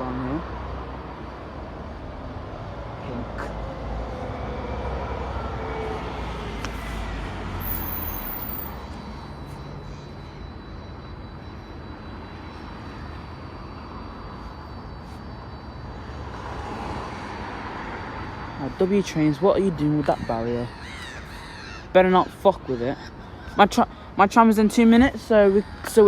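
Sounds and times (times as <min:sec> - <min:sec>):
vehicle passing with whine: 0:00.0 - 0:20.7
background traffic noise: 0:00.0 - 0:26.0.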